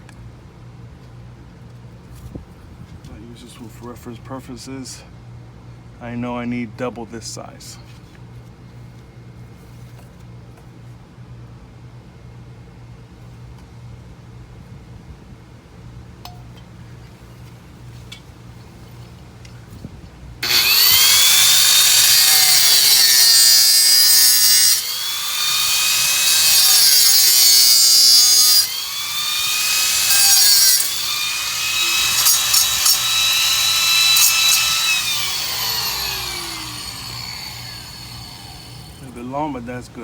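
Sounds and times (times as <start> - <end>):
power saw cutting plastic pipe: 20.4 - 39.1.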